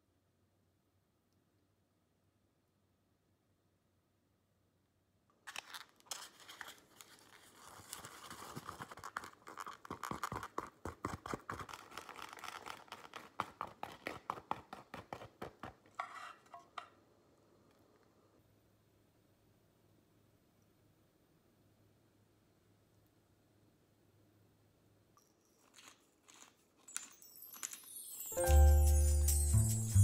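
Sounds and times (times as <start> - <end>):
chopsticks scraping plastic pack: 5.5 - 16.4, 25.6 - 27.1.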